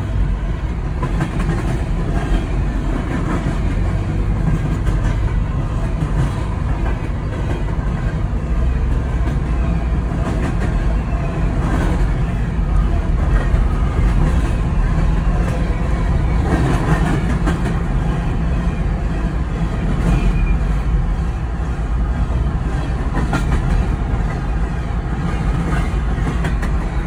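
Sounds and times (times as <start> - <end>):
freight train rumbling past: 0.0 - 27.0
wheels clicking over rail joints: 0.0 - 27.0.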